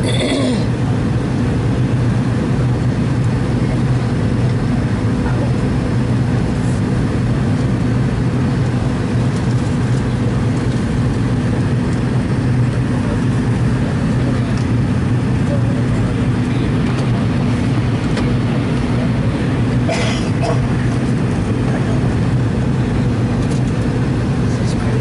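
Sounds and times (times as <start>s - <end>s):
jet engines rushing: 0.0s - 25.0s
low steady cabin hum: 0.0s - 25.0s.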